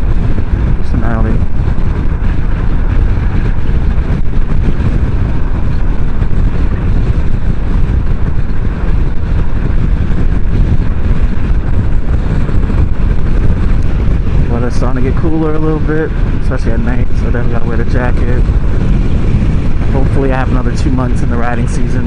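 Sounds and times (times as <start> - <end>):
road noise: 0.0 - 22.0
wind rush on microphone: 0.0 - 22.0.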